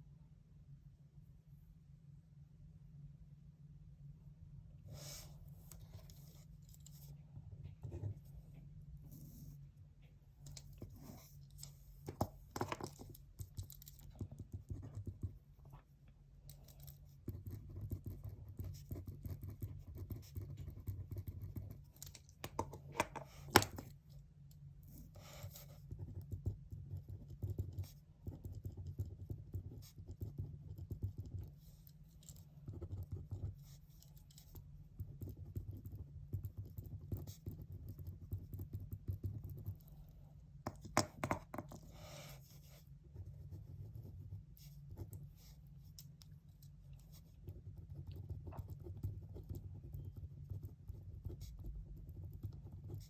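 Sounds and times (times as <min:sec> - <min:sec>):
low steady hum: 0:00.0 - 0:53.0
pen tapping on paper: 0:12.1 - 0:15.4, 0:22.4 - 0:23.9, 0:40.6 - 0:41.8
pen writing on paper: 0:17.2 - 0:21.8, 0:25.1 - 0:31.5, 0:32.3 - 0:33.8, 0:34.4 - 0:39.8, 0:47.1 - 0:53.0.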